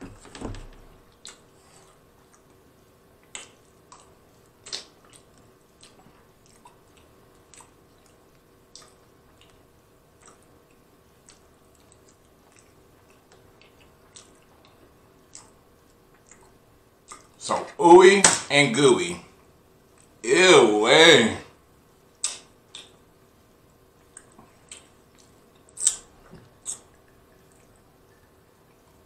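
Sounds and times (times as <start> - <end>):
person chewing wetly: 1.0 - 2.6, 3.2 - 17.4, 24.0 - 28.8.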